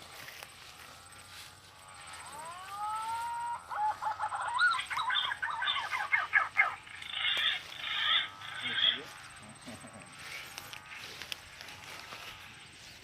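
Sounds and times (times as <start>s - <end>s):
bird calling and warbling: 2.1s - 9.3s.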